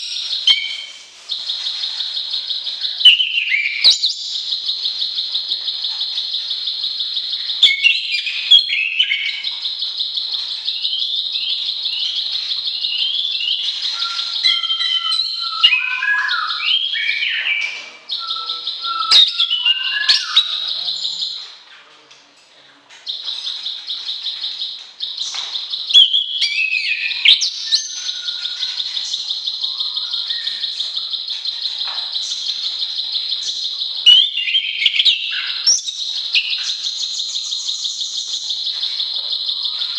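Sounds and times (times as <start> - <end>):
songbird trill and whistles: 0.0 - 21.6, 23.0 - 39.9.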